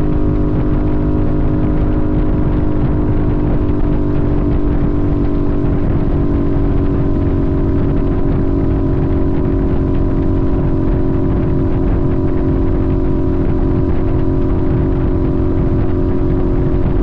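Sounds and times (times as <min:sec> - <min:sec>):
motorcycle engine cruising: 0:00.0 - 0:17.0
wind and road rumble: 0:00.0 - 0:17.0.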